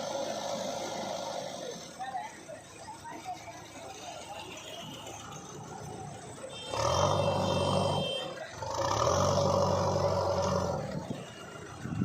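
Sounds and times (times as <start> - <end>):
diesel engine revving hard: 0.0 - 2.1, 6.6 - 12.0.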